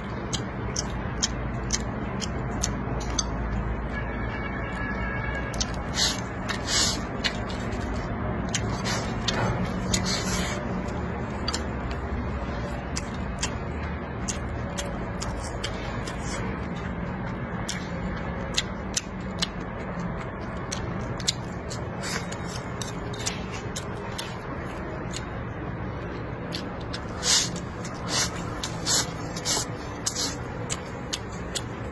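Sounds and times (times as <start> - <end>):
chewing crisp food: 0.0 - 4.0, 5.3 - 31.9
slurp: 5.8 - 7.8, 26.9 - 30.6.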